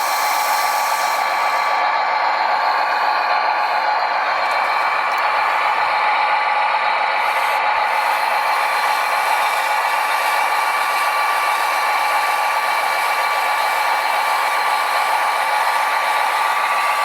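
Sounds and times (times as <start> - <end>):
electric motor whine: 0.0 - 1.9.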